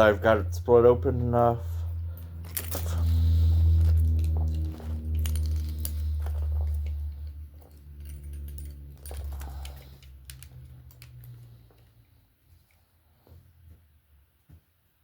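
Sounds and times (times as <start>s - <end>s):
low hum: 0.0s - 12.4s
metal clicks and jingling: 2.2s - 3.2s, 3.8s - 11.9s.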